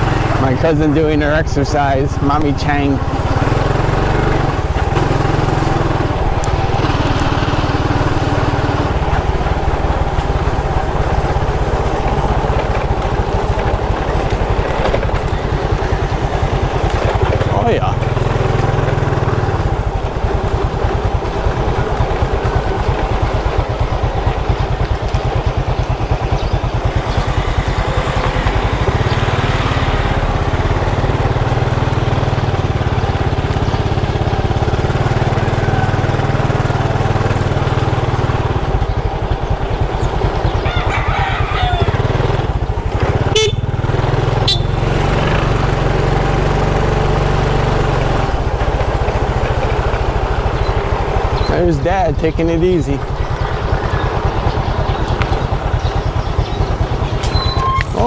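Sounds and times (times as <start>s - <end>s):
motorcycle engine rumble: 0.0s - 58.0s.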